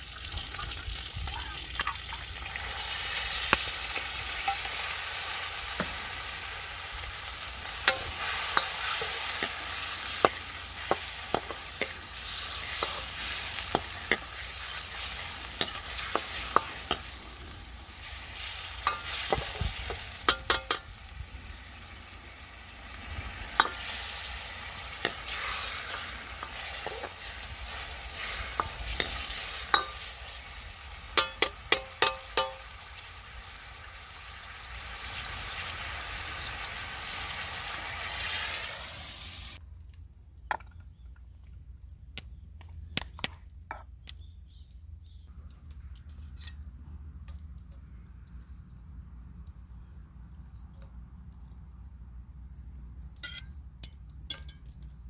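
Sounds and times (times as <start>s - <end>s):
food sizzling in a wok: 0.0s - 39.6s
spatula clanking and scraping pan: 18.8s - 20.9s, 28.2s - 30.1s, 31.2s - 32.6s.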